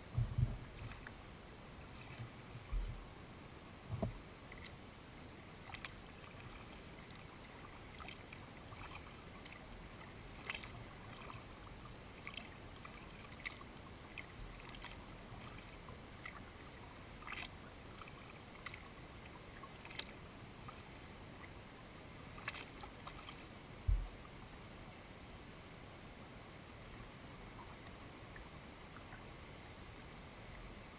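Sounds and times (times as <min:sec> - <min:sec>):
low hiss: 0:00.0 - 0:30.9
paddle drips and splashes: 0:00.2 - 0:01.2, 0:01.9 - 0:03.0, 0:04.0 - 0:04.8, 0:05.5 - 0:21.6, 0:22.2 - 0:24.4.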